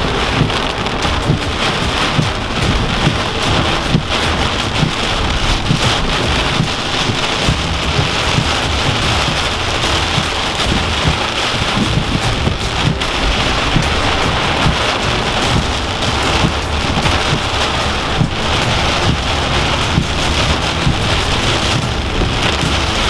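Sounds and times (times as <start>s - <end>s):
heavy rain pelting a car: 0.0s - 23.0s
small low thumps: 0.0s - 23.0s.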